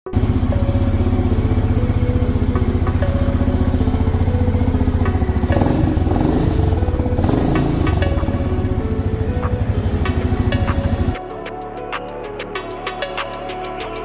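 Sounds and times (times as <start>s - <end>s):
motorcycle engine idling: 0.1s - 11.2s.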